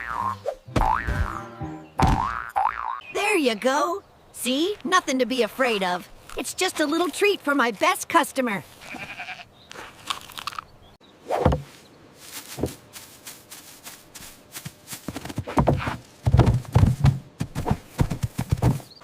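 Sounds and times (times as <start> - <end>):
sharp knocks and thumps: 0.7 - 1.4, 2.0 - 2.4, 11.4 - 11.7, 15.1 - 19.0.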